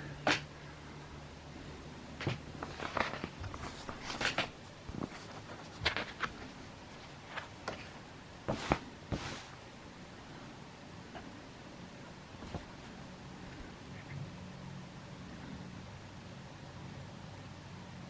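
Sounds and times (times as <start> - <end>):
handling clicks and rustles: 2.1 - 9.5, 12.1 - 14.2.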